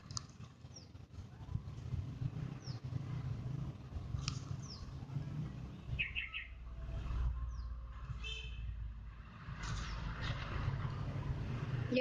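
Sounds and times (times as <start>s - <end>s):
small birds chirping: 0.0s - 8.5s.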